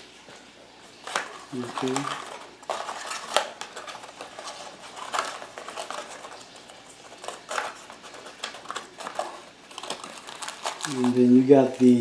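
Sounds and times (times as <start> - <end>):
packaging rustling and clicking: 0.9 - 12.0.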